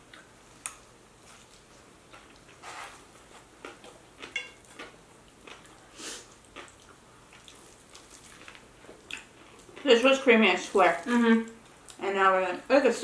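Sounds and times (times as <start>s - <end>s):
chewing and biting: 0.1s - 9.8s.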